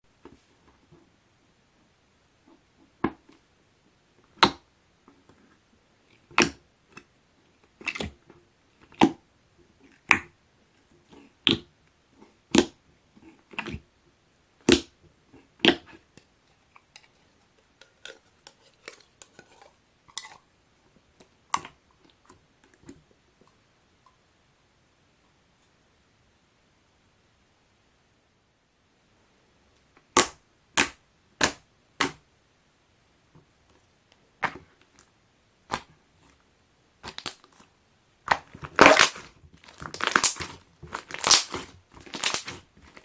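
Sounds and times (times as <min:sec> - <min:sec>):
faint slime crackles: 0:37.0 - 0:43.0
slime popping and clicking: 0:38.3 - 0:42.6.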